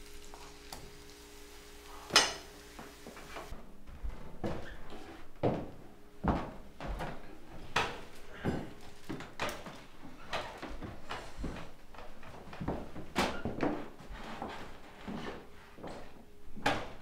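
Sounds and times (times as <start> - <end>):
shoes knocking on wooden floor: 5.4 - 7.8.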